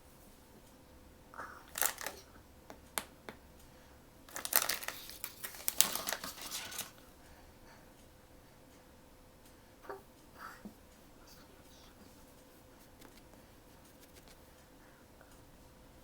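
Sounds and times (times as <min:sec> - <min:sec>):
packaging crinkling: 0:01.7 - 0:02.2, 0:04.3 - 0:07.0.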